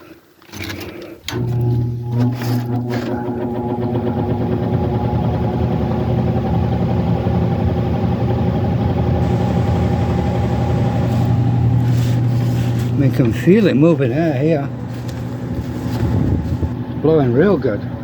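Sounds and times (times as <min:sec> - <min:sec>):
blower fan humming: 0:01.2 - 0:18.0
rushing air: 0:09.2 - 0:13.4.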